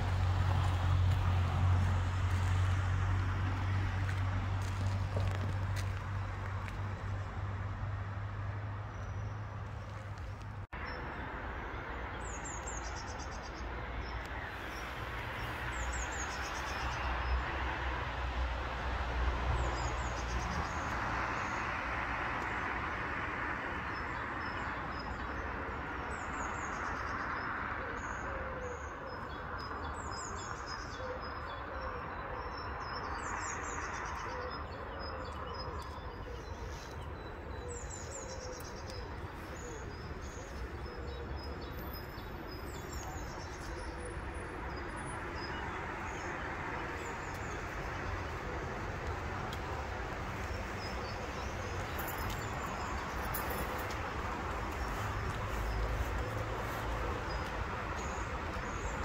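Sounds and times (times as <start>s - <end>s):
distant traffic hum: 0.0s - 59.0s
small songbirds chirping: 23.6s - 59.0s.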